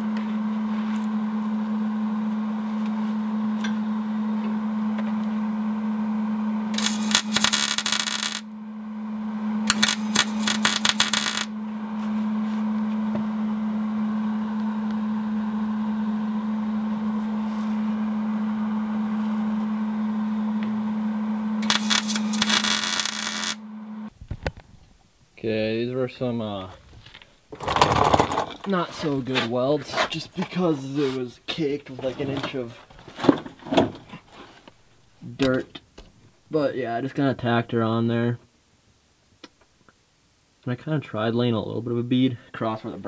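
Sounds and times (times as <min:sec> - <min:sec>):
steady low hum: 0:00.0 - 0:27.6
electric arc welder crackling: 0:06.7 - 0:08.5, 0:09.7 - 0:11.5, 0:21.6 - 0:23.6.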